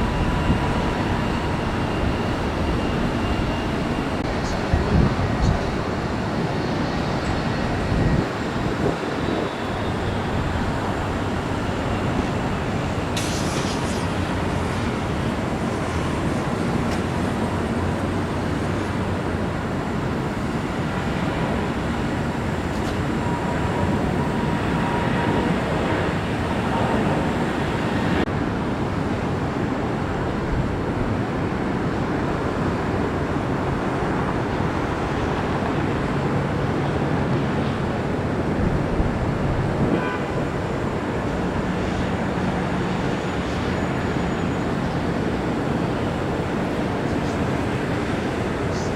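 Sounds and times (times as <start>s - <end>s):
jet engines rumbling: 0.0s - 48.9s
faint high whine: 39.9s - 42.0s.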